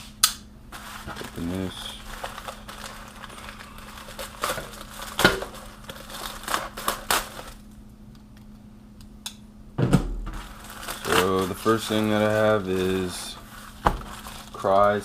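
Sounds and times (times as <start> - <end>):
packaging crinkling and tearing: 0.7 - 7.8, 10.3 - 15.0.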